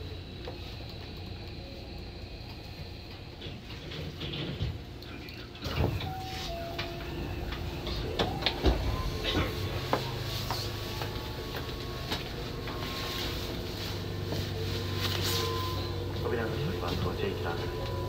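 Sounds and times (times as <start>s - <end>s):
train equipment humming: 0.0s - 18.0s
sliding doors clicks and clunks: 3.2s - 13.6s
two-note tone: 6.0s - 11.9s.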